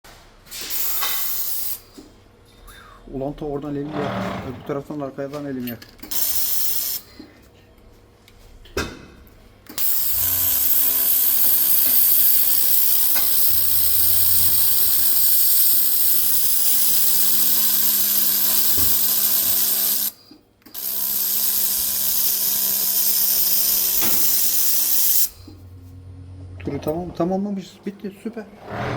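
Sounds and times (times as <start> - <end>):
laser welder hissing: 0.6 - 1.9, 6.1 - 7.1, 9.8 - 20.2, 20.8 - 25.6
faint hum: 25.3 - 28.6.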